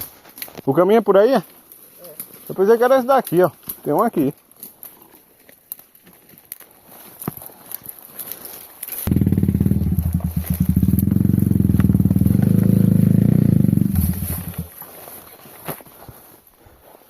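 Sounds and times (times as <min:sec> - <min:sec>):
motorcycle engine idling: 0:09.1 - 0:14.7.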